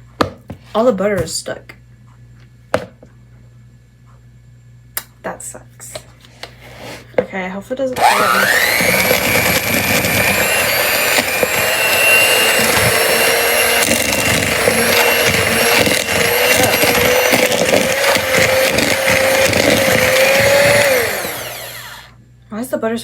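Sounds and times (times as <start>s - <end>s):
mixer knocking on bowl: 8.0s - 21.7s
electric hand mixer whining: 8.0s - 22.2s.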